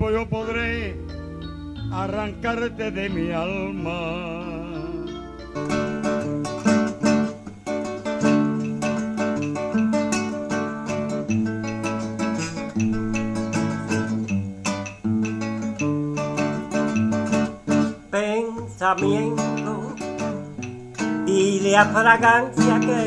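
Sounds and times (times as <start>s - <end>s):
bass line: 0.0s - 18.2s
acoustic guitars playing: 0.0s - 23.0s.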